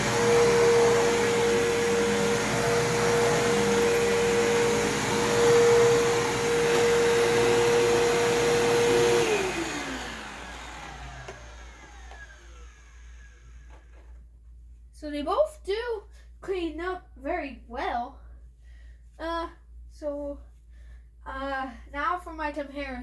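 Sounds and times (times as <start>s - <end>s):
vacuum cleaner motor running: 0.0s - 14.1s.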